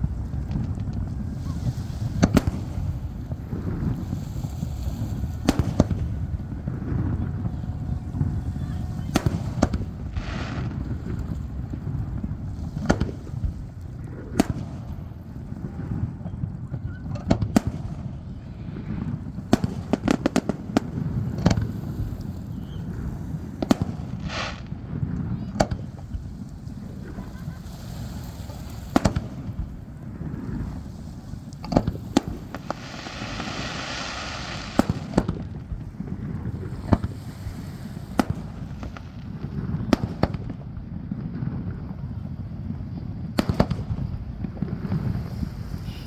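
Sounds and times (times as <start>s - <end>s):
fireworks hissing: 0.0s - 13.7s, 18.8s - 39.8s, 44.7s - 46.0s
fireworks booming: 0.0s - 46.0s.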